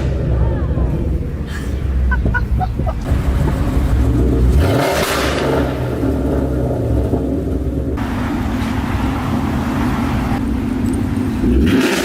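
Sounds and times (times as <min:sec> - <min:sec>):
car engine with loud exhaust: 0:00.0 - 0:12.0.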